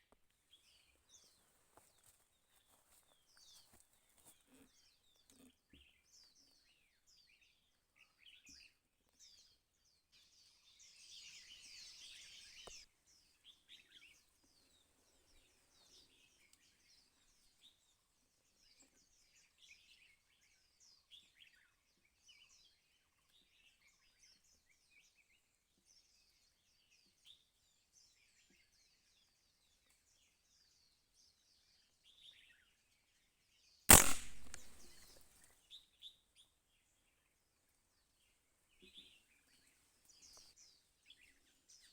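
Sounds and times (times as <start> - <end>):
small birds chirping: 0.0 - 33.3, 33.9 - 41.9
gunshot: 33.9 - 35.1.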